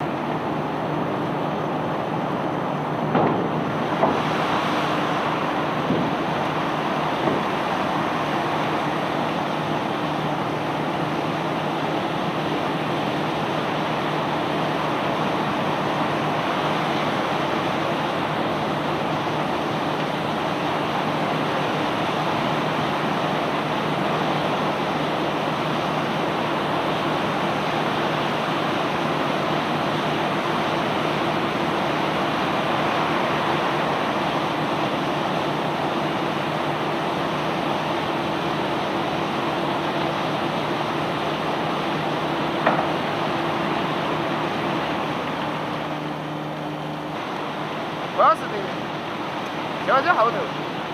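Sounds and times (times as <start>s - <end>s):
sharp knocks: 3.1s - 4.2s.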